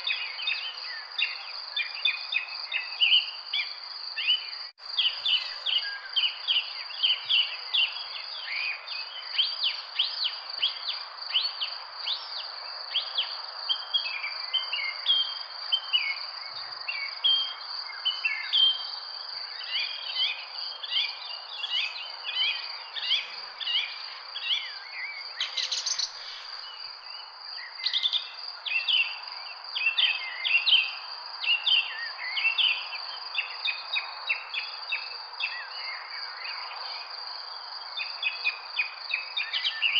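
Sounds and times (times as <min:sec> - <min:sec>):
small birds chirping: 0:00.0 - 0:37.2.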